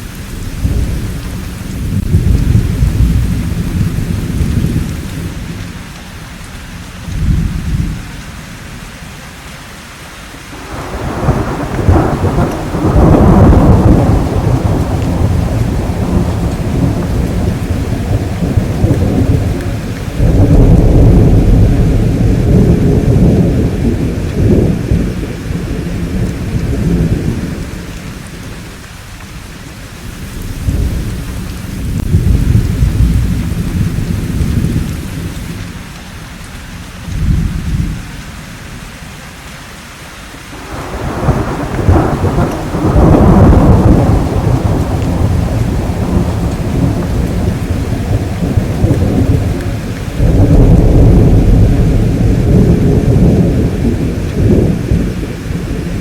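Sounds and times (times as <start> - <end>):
rolling thunder: 0.0 - 5.9, 6.8 - 8.2, 10.6 - 36.0, 36.7 - 38.8, 40.6 - 56.0
steady rain: 0.0 - 56.0.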